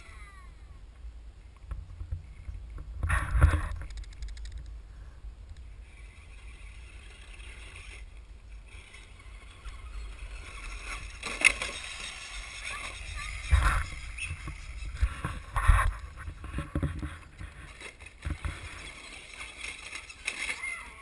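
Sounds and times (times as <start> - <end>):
wind rumble on microphone: 1.6 - 6.5, 13.1 - 18.6
radio-controlled truck driving: 5.5 - 21.0.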